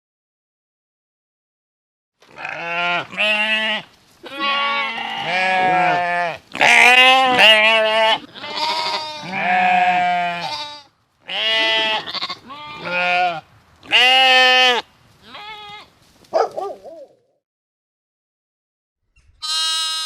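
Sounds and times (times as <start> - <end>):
sheep bleating: 2.3 - 15.9, 19.4 - 20.0.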